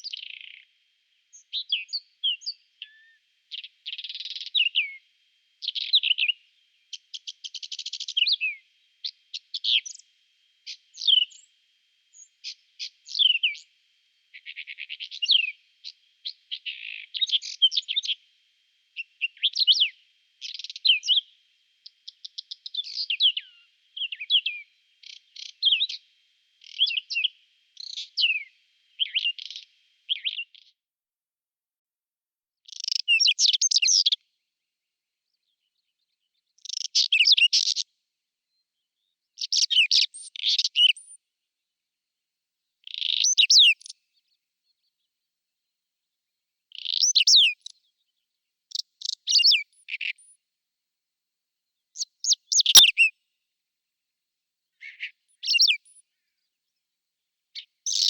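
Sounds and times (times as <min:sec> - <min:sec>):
bird singing: 0:00.0 - 0:05.0, 0:05.6 - 0:18.2, 0:19.0 - 0:30.7, 0:32.7 - 0:34.2, 0:35.2 - 0:37.9, 0:38.5 - 0:41.2, 0:42.8 - 0:45.1, 0:46.7 - 0:50.4, 0:51.8 - 0:53.2, 0:54.8 - 0:56.8, 0:57.6 - 0:58.0.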